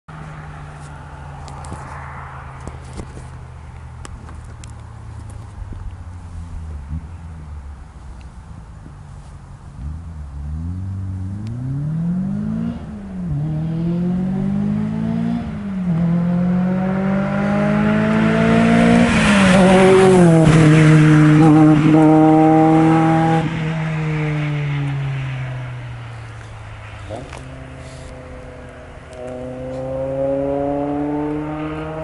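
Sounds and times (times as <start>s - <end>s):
car engine accelerating: 9.6s - 32.0s.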